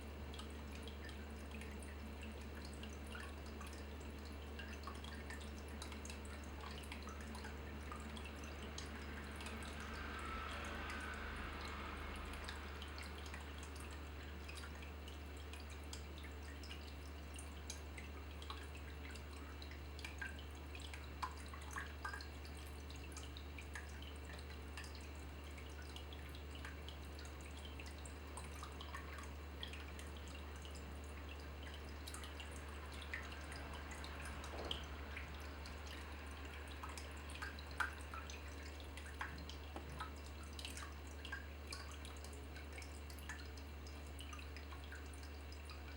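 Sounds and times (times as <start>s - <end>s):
water dripping: 0.0s - 45.9s.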